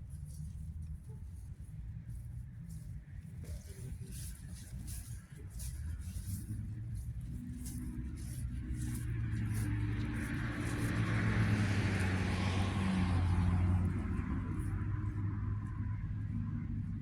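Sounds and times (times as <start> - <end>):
car engine humming: 6.0 - 17.0.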